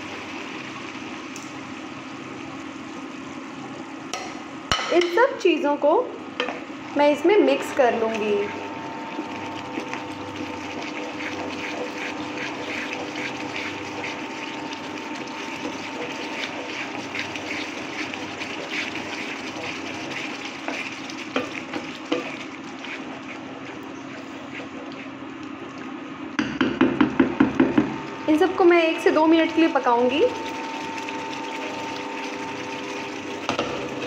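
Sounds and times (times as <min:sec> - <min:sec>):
sauce sizzling in oil: 0:00.0 - 0:26.4, 0:28.1 - 0:34.0
cooktop hum: 0:00.0 - 0:34.0
spatula stirring and scraping pan: 0:07.5 - 0:25.2.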